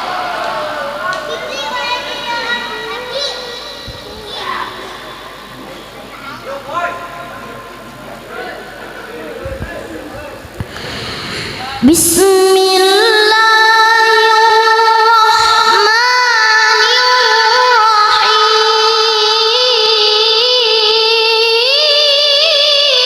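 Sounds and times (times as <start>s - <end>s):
child reciting melodically: 1.0s - 5.4s, 11.8s - 23.0s.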